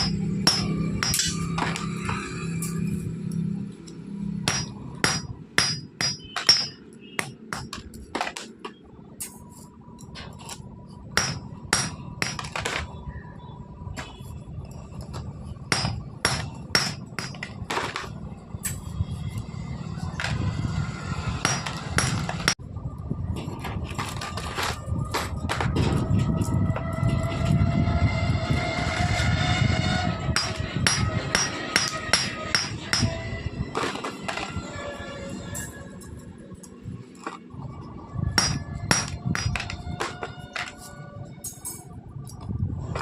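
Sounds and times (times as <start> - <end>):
hammer striking metal: 0.0 - 2.9, 4.4 - 8.4, 11.2 - 12.8, 15.7 - 18.8, 21.4 - 22.6, 30.4 - 33.2, 38.4 - 40.4.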